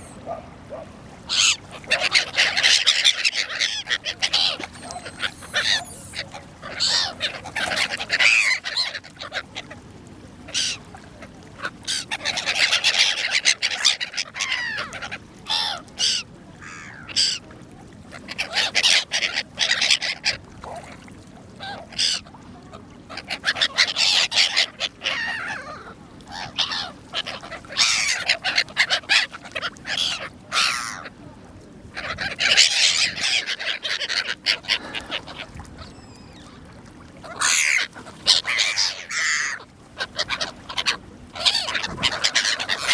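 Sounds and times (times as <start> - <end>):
gulls calling: 0.0 - 9.7, 11.6 - 17.4, 31.9 - 42.9.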